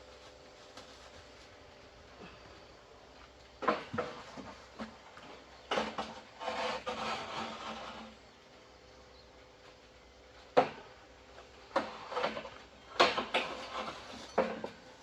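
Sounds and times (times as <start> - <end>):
scraping rubbing noise: 6.0 - 8.2.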